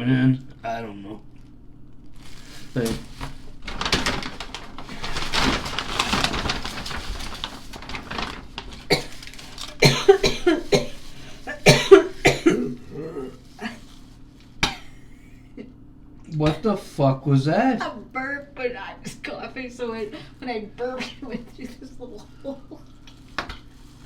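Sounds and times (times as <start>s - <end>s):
man coughing: 9.8s - 13.8s
man burping: 11.7s - 13.4s.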